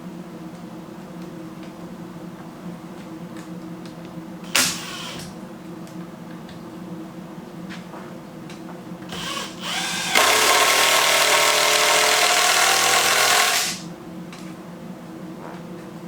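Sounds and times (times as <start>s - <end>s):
power drill driving a screw: 4.5s - 5.3s, 9.1s - 13.9s.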